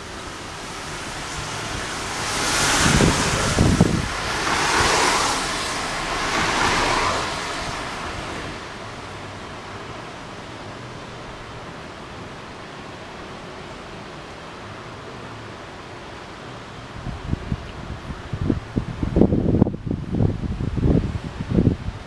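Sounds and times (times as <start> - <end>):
wind buffeting microphone: 0.0 - 10.5, 16.8 - 22.0
storm wind gusting: 0.0 - 12.6, 16.9 - 22.0.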